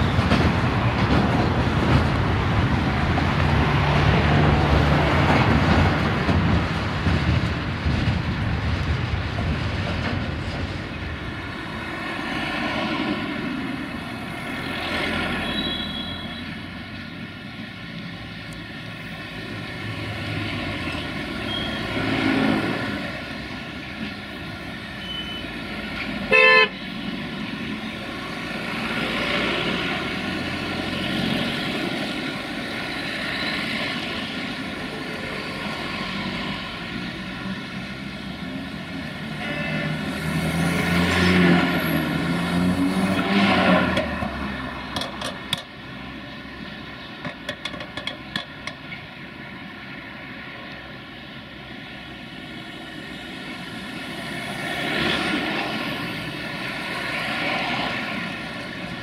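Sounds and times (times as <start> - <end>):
train wheels rumbling on rail: 0.0 - 49.2
locomotive horn toot: 15.4 - 16.6, 26.3 - 26.8, 39.3 - 40.1.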